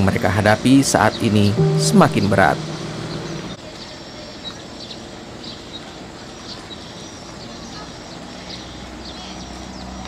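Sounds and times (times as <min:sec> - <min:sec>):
steady background hiss: 0:00.0 - 0:03.6
birds chirping: 0:00.6 - 0:04.0.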